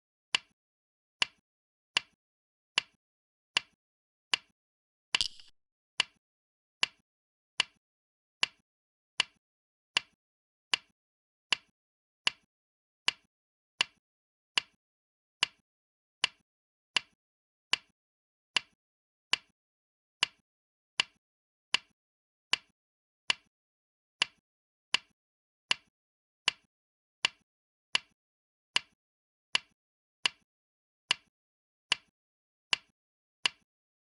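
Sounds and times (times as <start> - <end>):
go stone clicks: 5.2 - 5.5.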